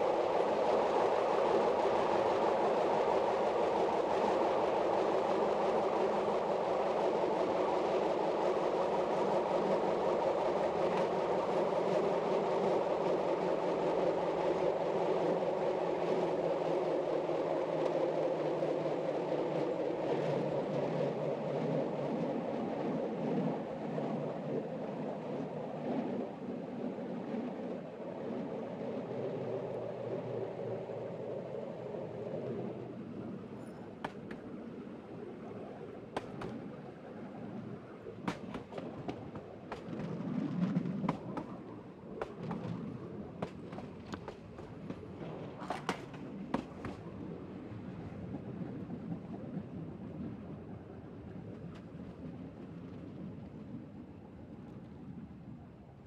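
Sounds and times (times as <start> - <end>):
train wheels on rail: 33.6 - 34.5, 36.2 - 36.6, 38.2 - 47.1.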